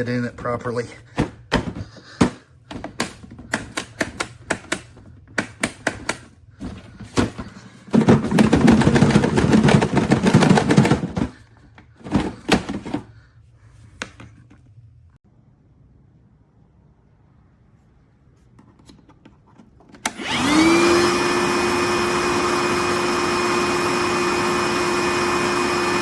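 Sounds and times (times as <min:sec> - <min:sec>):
hard plastic clicks and knocks: 0:01.1 - 0:11.3.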